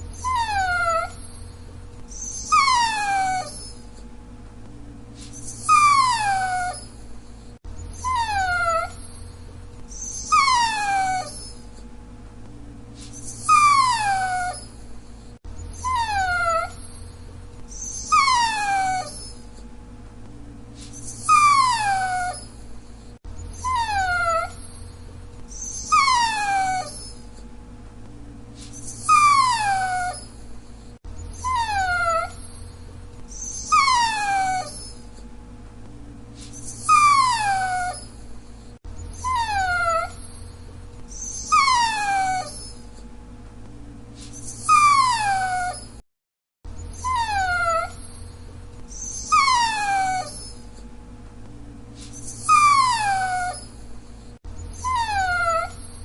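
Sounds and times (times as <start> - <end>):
dog whining: 0.0 - 4.1, 5.2 - 11.9, 13.0 - 19.7, 20.8 - 27.5, 28.6 - 35.3, 36.4 - 43.1, 44.2 - 46.0, 46.7 - 50.9, 52.0 - 56.0
steady low hum: 0.0 - 46.0, 46.7 - 56.0.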